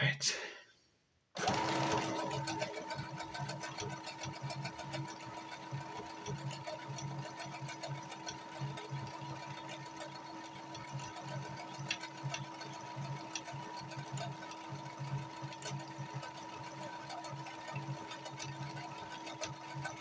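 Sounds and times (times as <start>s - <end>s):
sewing machine stitching: 1.4s - 20.0s.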